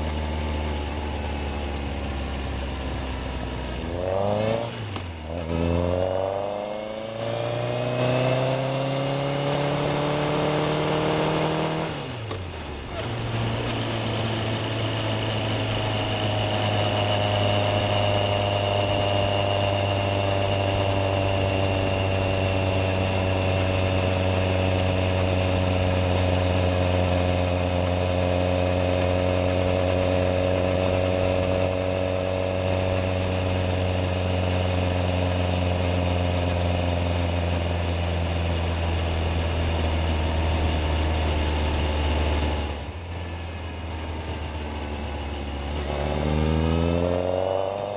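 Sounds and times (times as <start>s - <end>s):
motorcycle engine idling: 42.8s - 46.4s.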